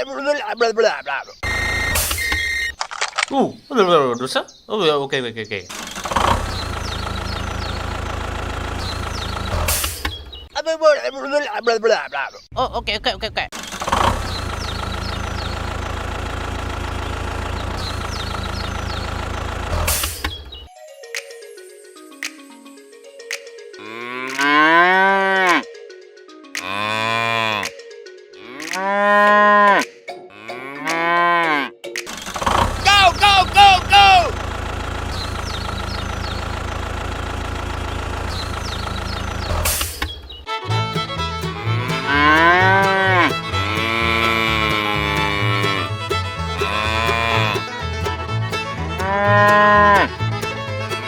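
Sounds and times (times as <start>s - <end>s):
cow mooing: 23.8s - 25.6s, 26.6s - 27.8s, 28.4s - 31.8s, 41.6s - 46.0s, 46.6s - 47.7s, 49.0s - 50.1s
music with stepping bass line: 40.7s - 51.0s.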